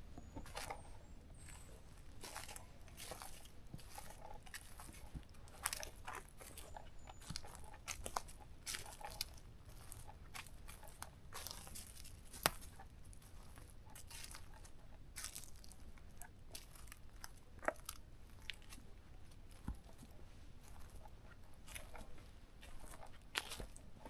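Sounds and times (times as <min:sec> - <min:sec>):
footsteps crunching through dry leaves: 0:01.4 - 0:10.0, 0:10.9 - 0:12.7, 0:13.3 - 0:15.7, 0:21.7 - 0:23.8.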